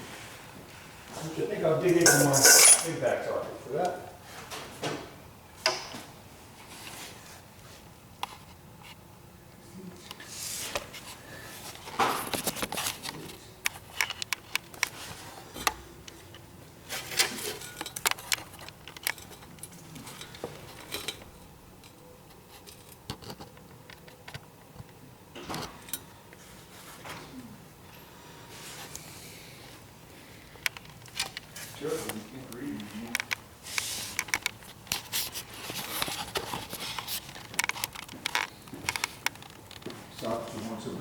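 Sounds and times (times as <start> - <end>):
steel sockets clinking: 1.9 - 2.9.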